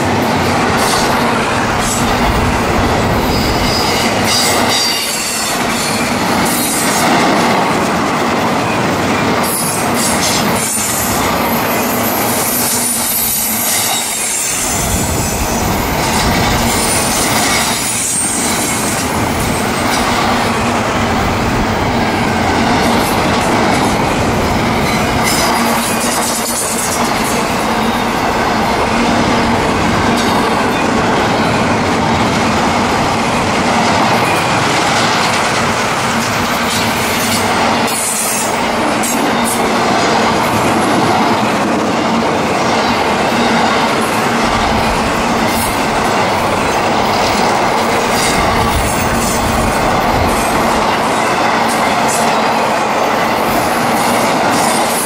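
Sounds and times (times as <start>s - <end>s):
freight train rumbling past: 0.0s - 55.0s
train wheels squealing: 3.2s - 7.2s, 8.6s - 20.4s, 24.5s - 28.9s.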